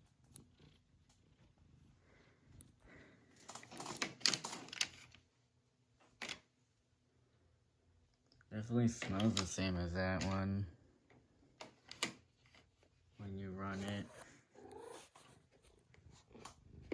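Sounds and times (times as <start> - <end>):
faint handling clicks and rustles: 0.0 - 6.6, 8.2 - 10.4, 11.0 - 14.5.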